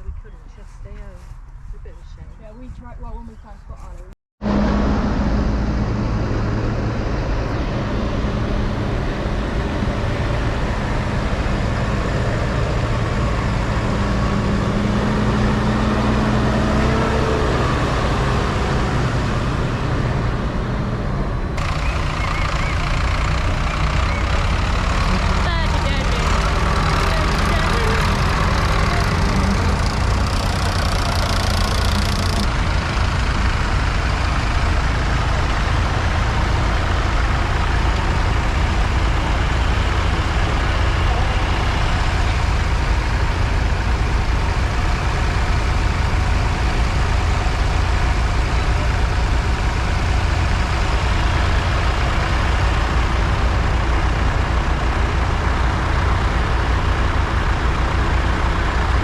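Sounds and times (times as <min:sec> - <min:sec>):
tractor engine rumbling: 0:00.0 - 0:59.0.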